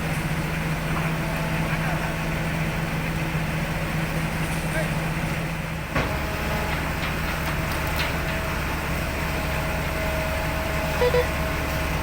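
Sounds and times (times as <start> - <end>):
heavy diesel engine running: 0.0 - 12.0
short beeps: 11.0 - 11.4.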